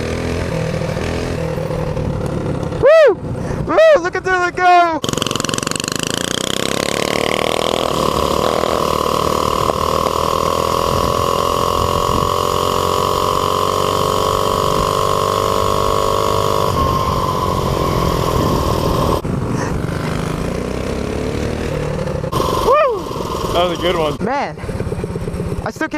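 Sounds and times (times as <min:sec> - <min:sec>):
small engine running hard: 0:00.0 - 0:03.7, 0:04.4 - 0:25.9
wind on microphone: 0:10.8 - 0:12.5, 0:16.5 - 0:19.9.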